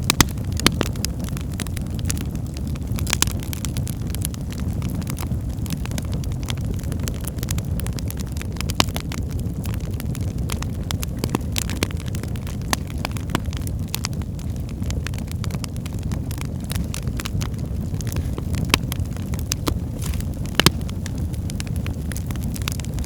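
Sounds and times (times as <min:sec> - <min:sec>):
fire crackles and pops: 0:00.0 - 0:23.0
low rumble of flames: 0:00.0 - 0:23.0.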